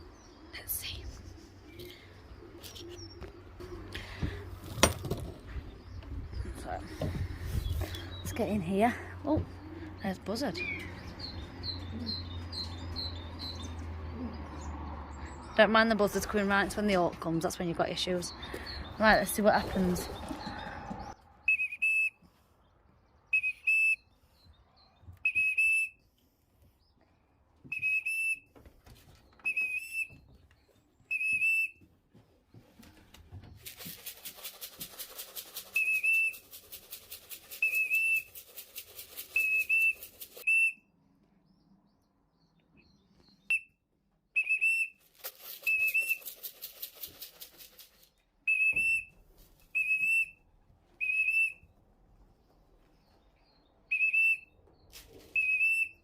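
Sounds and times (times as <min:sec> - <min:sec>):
shrill warbling whistle blasts: 0:21.5 - 0:22.1, 0:48.5 - 0:49.1, 0:51.0 - 0:51.6, 0:53.9 - 0:54.5, 0:55.4 - 0:56.0
rapid even rattling: 0:33.6 - 0:40.4, 0:45.1 - 0:48.1.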